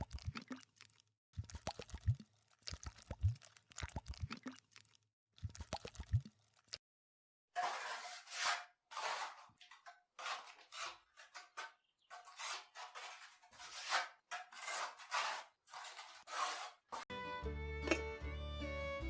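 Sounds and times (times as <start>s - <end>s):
scraping rasping strokes: 7.6s - 17.1s.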